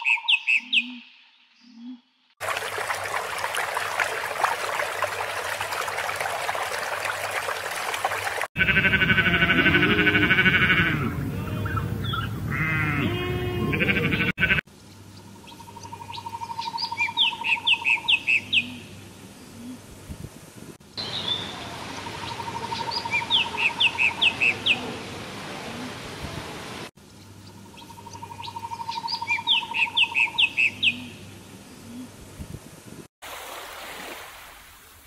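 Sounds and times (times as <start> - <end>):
sheep bleating: 8.6 - 11.8, 12.5 - 14.6.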